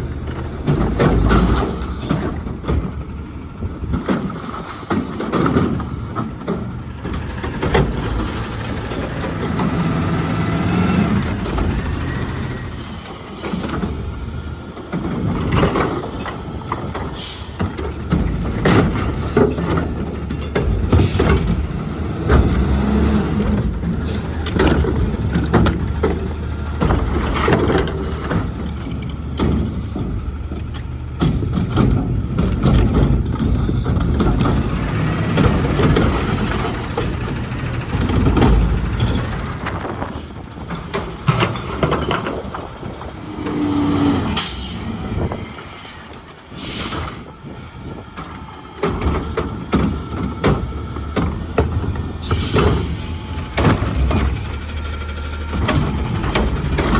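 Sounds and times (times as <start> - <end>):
garbage truck engine rumbling: 0.0 - 56.9
air brake hissing: 43.5 - 47.3, 52.2 - 53.3.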